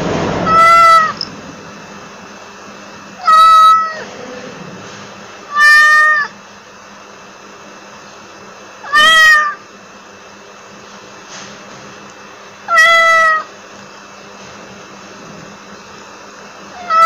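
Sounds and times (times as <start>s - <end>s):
cat meowing: 0.4s - 1.3s, 3.2s - 4.1s, 5.5s - 6.4s, 8.8s - 9.6s, 12.7s - 13.5s, 16.7s - 17.0s.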